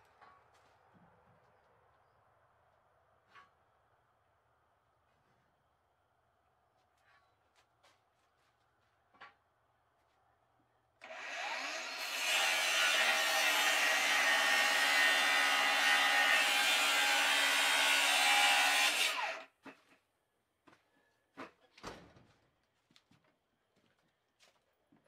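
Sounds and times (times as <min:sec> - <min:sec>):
power saw cutting wood: 0:11.0 - 0:19.5.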